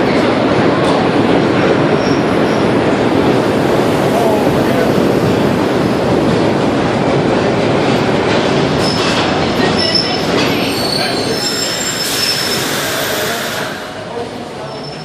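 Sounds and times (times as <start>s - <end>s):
train wheels rumbling on rails: 0.0s - 15.0s
wheel and brake squeals: 1.9s - 2.7s, 8.8s - 13.7s, 14.6s - 15.0s.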